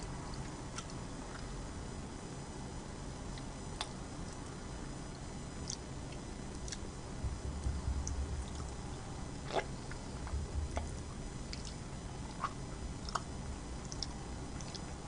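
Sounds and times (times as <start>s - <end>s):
jaw chewing: 9.4s - 15.0s
wet mouth clicks and smacks: 12.4s - 14.9s.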